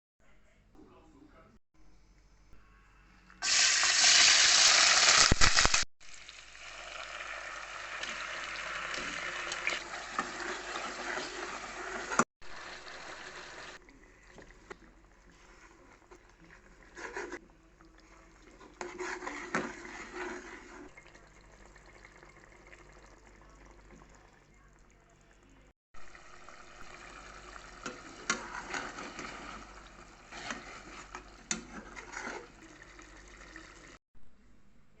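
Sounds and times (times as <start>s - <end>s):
food sizzling in hot oil: 3.4s - 13.8s
stirring in pan: 7.6s - 24.2s, 26.0s - 34.0s.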